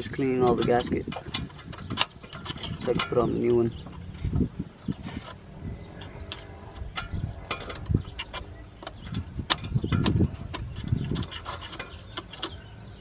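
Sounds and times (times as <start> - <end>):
tool scraping on metal: 0.0 - 12.7.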